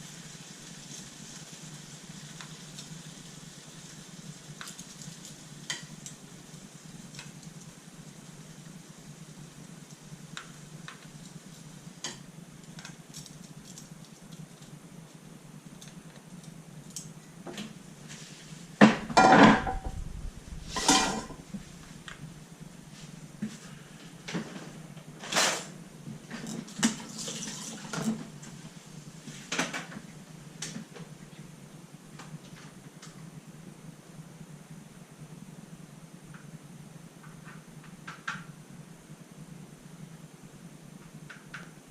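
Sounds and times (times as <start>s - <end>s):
low steady hum: 0.0s - 41.9s
dishes and cutlery clattering: 20.8s - 21.4s.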